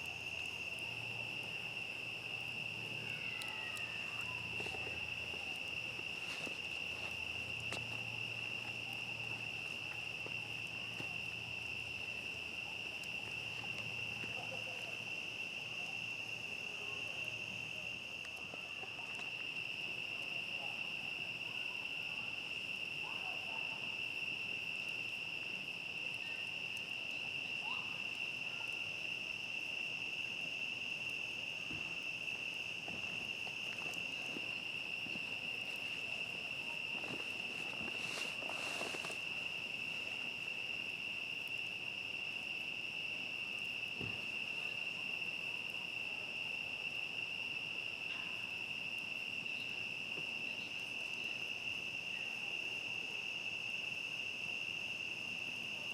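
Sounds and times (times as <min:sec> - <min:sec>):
crickets trilling: 0:00.0 - 0:55.9
rustling: 0:04.4 - 0:07.2, 0:33.8 - 0:40.3.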